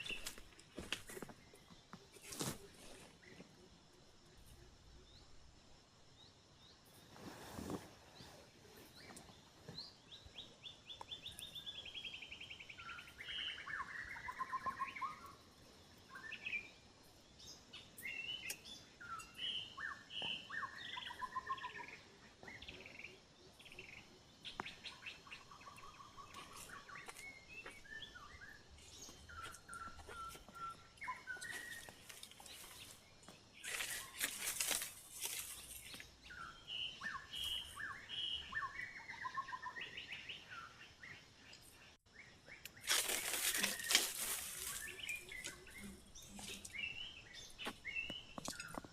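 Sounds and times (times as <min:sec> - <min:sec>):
birds calling and chirping: 0:00.0 - 0:05.4, 0:06.2 - 0:48.9
rustling: 0:33.6 - 0:36.1, 0:42.8 - 0:46.7.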